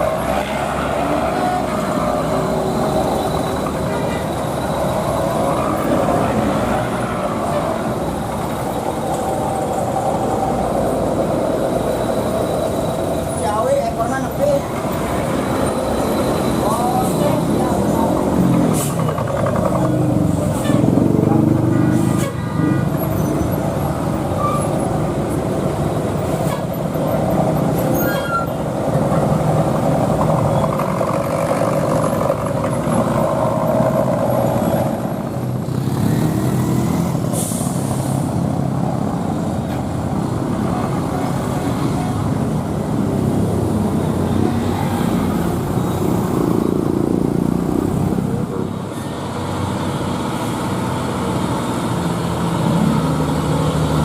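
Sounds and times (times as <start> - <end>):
truck diesel engines running: 0.0 - 54.0.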